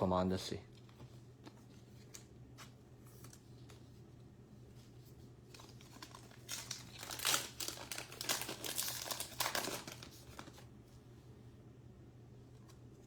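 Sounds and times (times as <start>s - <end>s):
card pack wrapper crinkling: 5.6s - 10.6s.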